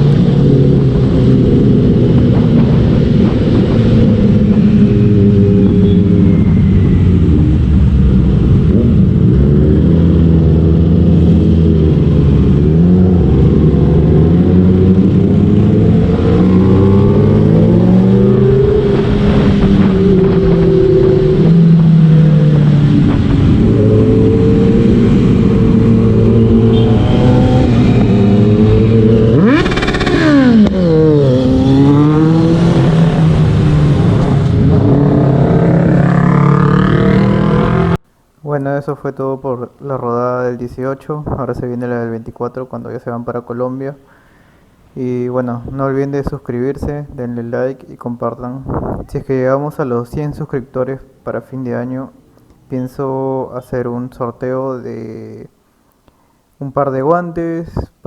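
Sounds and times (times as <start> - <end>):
motorcycle engines revving: 0.0 - 38.0.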